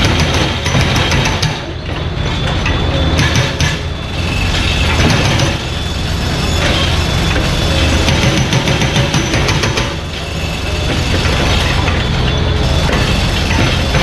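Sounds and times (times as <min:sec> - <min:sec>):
excavator knocks and scraping: 0:00.0 - 0:04.0, 0:04.6 - 0:05.7, 0:06.6 - 0:14.0
diesel engine running: 0:00.0 - 0:14.0.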